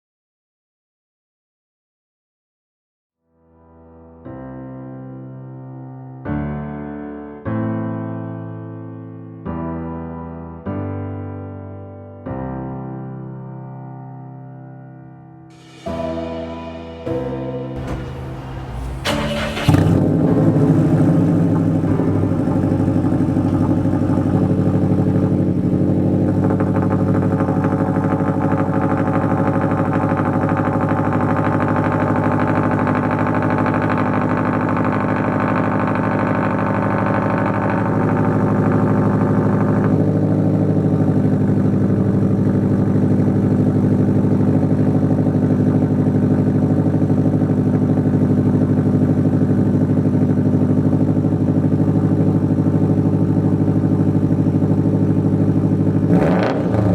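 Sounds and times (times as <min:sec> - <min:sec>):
car engine cranking and starting: 0:17.8 - 0:56.9
car engine idling loudly: 0:17.8 - 0:56.9.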